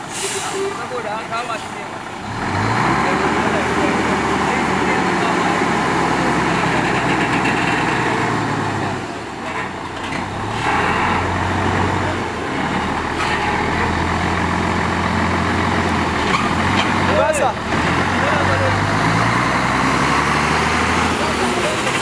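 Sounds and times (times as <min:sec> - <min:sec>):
outdoor noise: 0:00.0 - 0:22.0.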